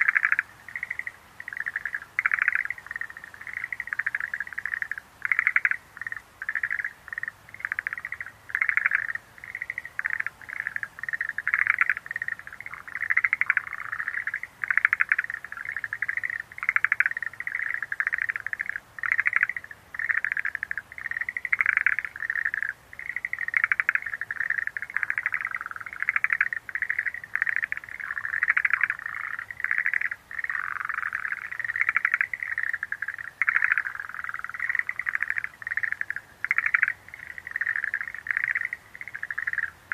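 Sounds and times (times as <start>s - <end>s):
tree frogs trilling in chorus: 0.0s - 39.9s.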